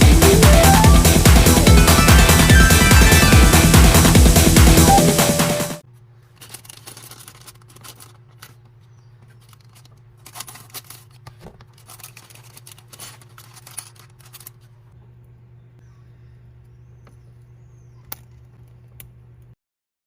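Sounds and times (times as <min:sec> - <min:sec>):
clicks and rustles of handling: 0:05.9 - 0:15.0
packaging rustling: 0:06.0 - 0:14.8
steady low hum: 0:07.4 - 0:19.6.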